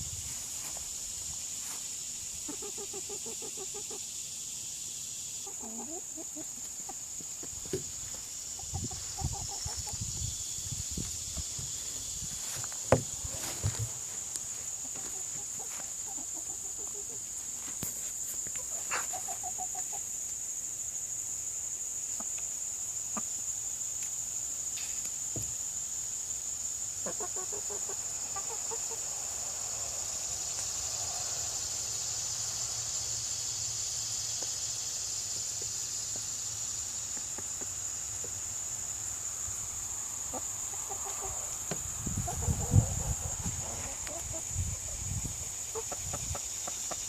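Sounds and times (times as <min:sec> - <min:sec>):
chickens clucking: 0:01.6 - 0:10.3, 0:10.9 - 0:20.2, 0:27.0 - 0:29.1, 0:40.2 - 0:47.0.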